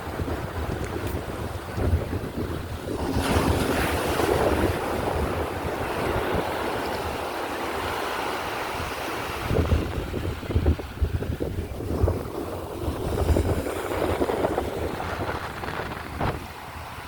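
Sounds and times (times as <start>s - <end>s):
surf washing up the beach: 0.0s - 17.0s
wind buffeting microphone: 0.0s - 17.0s.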